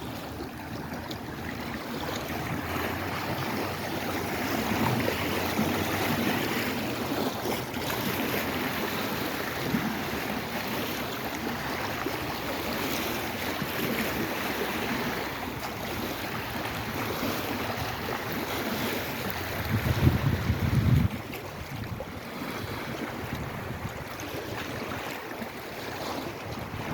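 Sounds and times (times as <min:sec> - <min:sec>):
waves washing: 0:00.0 - 0:26.9
wind on microphone: 0:15.8 - 0:26.9.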